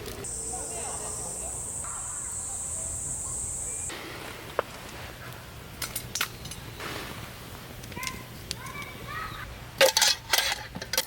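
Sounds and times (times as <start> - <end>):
insects trilling: 0.0 - 3.9.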